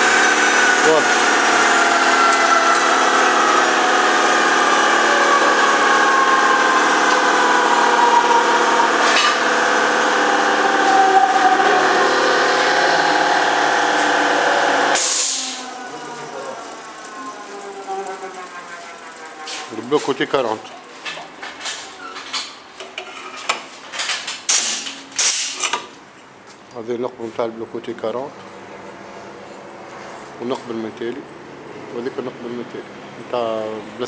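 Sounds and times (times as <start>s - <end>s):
power tool cutting metal whine: 0.0s - 20.9s.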